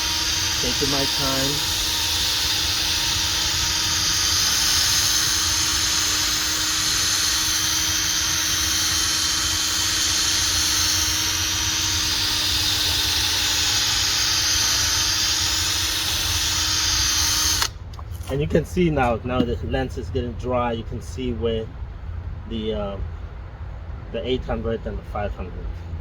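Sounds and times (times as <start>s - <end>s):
power drill whirring: 0.0s - 18.3s.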